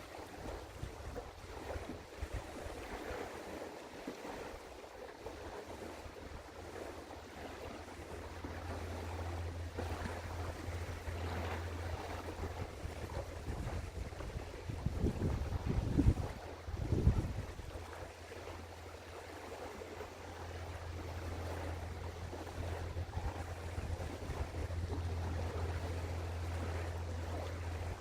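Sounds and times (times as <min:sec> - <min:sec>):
wind buffeting the microphone: 0:00.1 - 0:03.6, 0:05.3 - 0:28.0
ship engine drone: 0:06.3 - 0:28.0.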